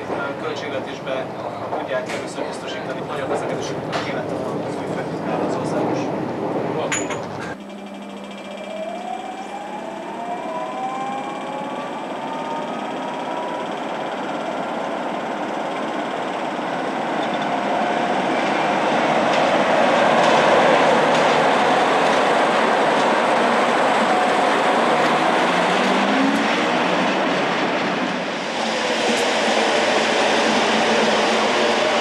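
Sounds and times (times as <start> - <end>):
train pulling away: 7.6 - 32.0.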